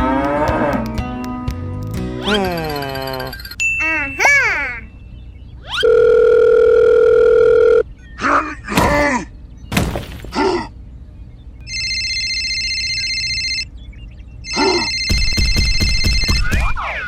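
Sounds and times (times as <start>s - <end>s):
telephone ringing trill: 3.0s - 3.8s, 5.8s - 7.8s, 11.7s - 13.7s, 14.4s - 16.6s
electronic beep: 4.9s - 8.2s, 11.7s - 16.8s.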